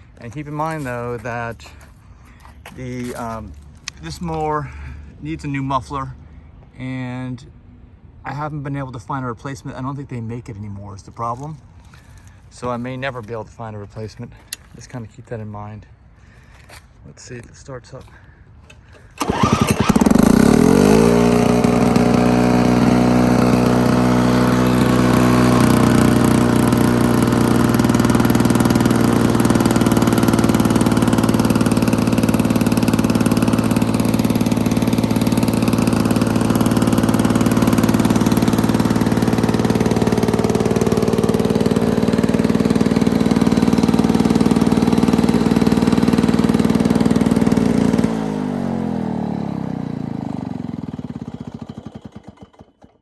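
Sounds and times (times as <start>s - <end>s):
lawn mower engine running: 18.7s - 53.0s.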